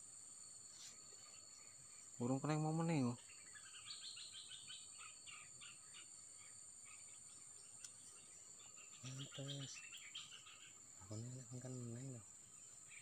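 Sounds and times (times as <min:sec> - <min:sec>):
high-pitched insect drone: 0:00.0 - 0:13.0
small bird chirping: 0:00.0 - 0:13.0.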